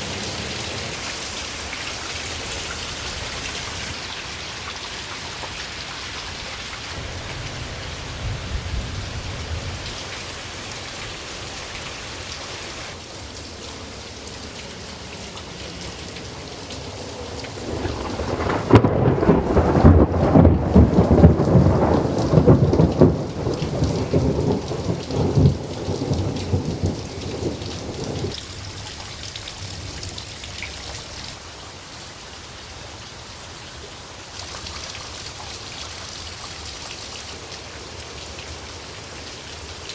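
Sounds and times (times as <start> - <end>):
heavy rain falling: 0.0 - 39.9
rolling thunder: 7.0 - 10.2, 17.3 - 28.8.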